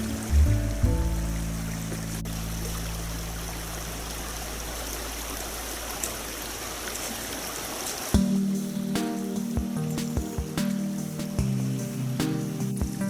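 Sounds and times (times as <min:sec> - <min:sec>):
background music: 0:00.0 - 0:04.2, 0:08.2 - 0:13.0.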